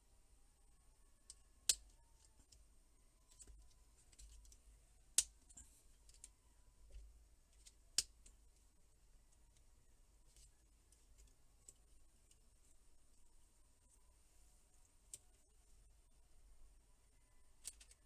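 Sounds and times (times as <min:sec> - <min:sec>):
faint ticks and taps: 0:05.2 - 0:08.4.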